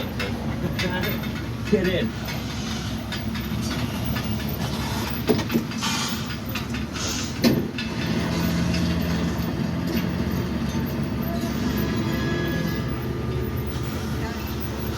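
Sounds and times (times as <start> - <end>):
tram running with low rumble: 0.0 - 14.9.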